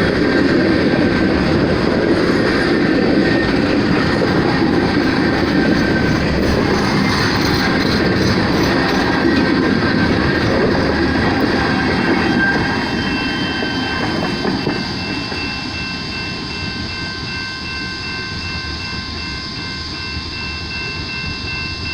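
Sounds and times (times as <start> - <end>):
train wheels clickety-clack: 0.0 - 21.9
high-pitched wheel squeal: 10.3 - 15.6.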